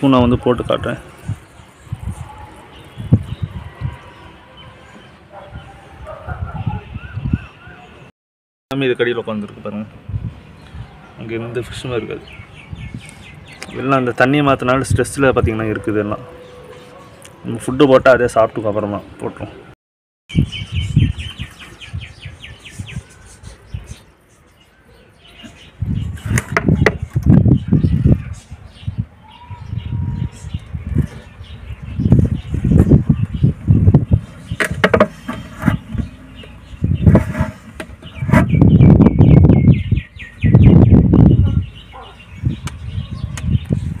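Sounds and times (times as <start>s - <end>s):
bird chirping: 10.4s - 14.8s, 20.3s - 44.0s
small bird rapid high chirps: 20.3s - 26.4s.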